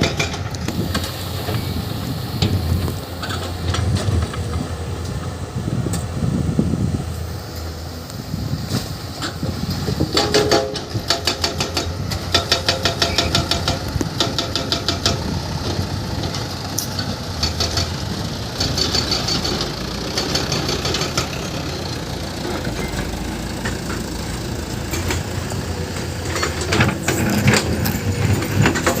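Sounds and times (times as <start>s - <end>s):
sharp metallic knocks and clacks: 0.0s - 0.6s, 9.2s - 18.0s, 18.6s - 21.6s
excavator diesel engine running: 0.0s - 29.0s.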